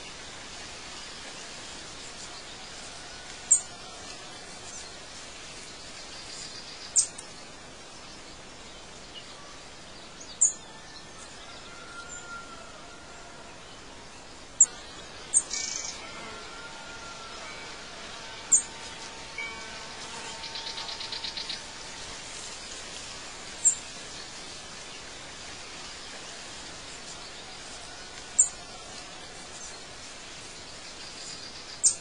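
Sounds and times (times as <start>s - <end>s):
faint hiss: 0.0s - 32.0s
bird trill: 14.6s - 21.8s
birds chirping: 17.2s - 32.0s.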